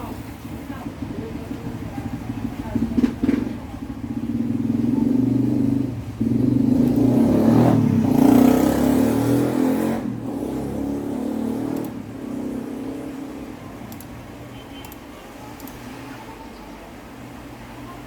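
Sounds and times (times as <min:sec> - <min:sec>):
engine running: 0:00.0 - 0:16.1.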